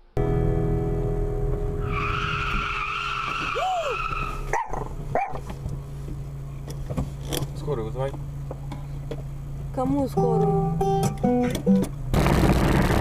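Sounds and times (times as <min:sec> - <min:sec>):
car engine and road noise: 0:00.0 - 0:13.0
tyres screeching: 0:01.8 - 0:05.6.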